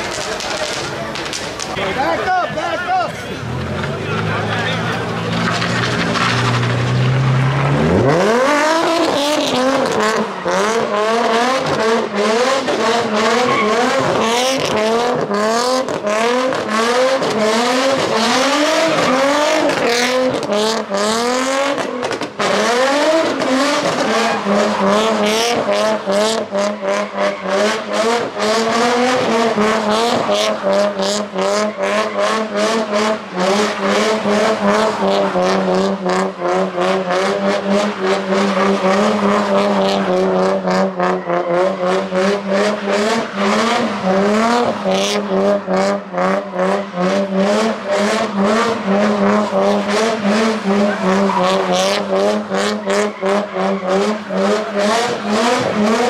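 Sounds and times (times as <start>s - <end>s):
car engine revving: 0.0s - 56.0s
tyres squealing: 13.1s - 14.2s, 48.7s - 55.9s.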